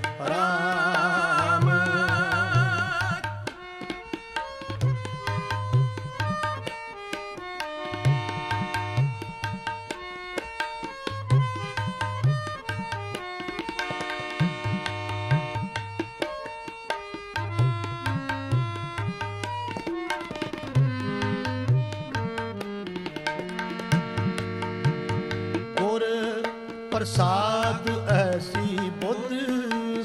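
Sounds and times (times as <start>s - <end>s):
harmonium melody: 0.0s - 30.0s
tabla rhythm: 0.0s - 30.0s.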